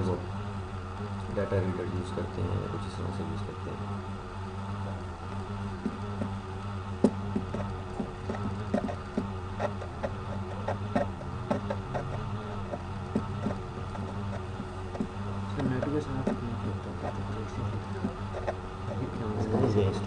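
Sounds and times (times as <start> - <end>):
low electrical hum: 0.0 - 20.0
keyboard and mouse clicks: 7.0 - 14.4.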